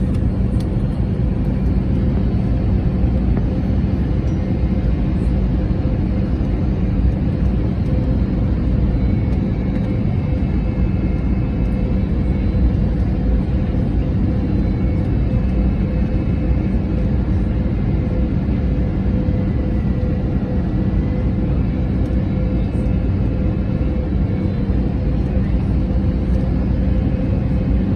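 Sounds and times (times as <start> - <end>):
airliner engines and airflow rumble: 0.0 - 27.9
constant hum: 0.0 - 27.9.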